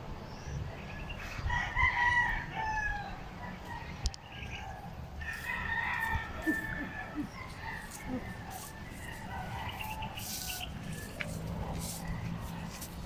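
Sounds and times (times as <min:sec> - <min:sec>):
rooster crowing: 0:01.5 - 0:03.9, 0:04.7 - 0:11.3.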